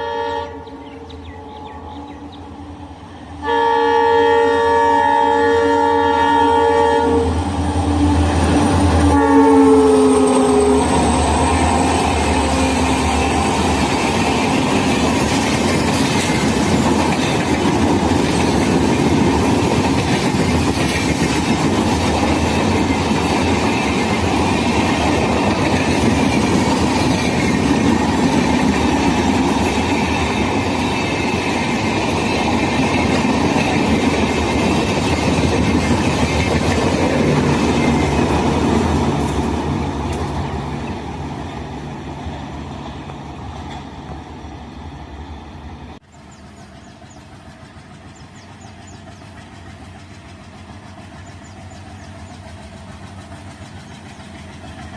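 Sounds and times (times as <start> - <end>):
train horn: 0.0 - 2.4, 3.2 - 13.7
train wheels on rails: 0.0 - 54.9.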